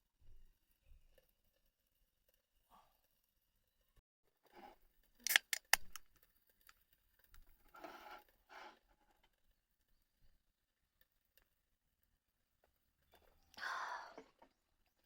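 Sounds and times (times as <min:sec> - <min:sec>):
sharp clicks: 0:05.2 - 0:07.4.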